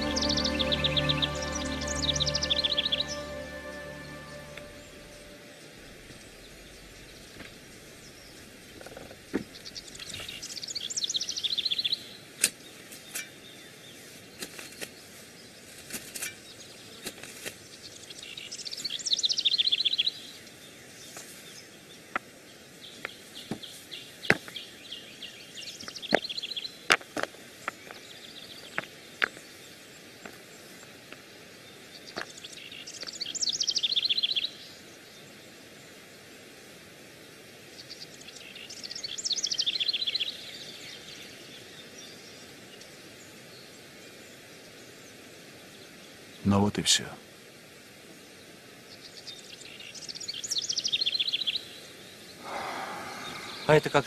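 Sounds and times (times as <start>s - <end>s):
faint outdoor background: 0.0s - 54.0s
songbird trilling: 52.4s - 54.0s.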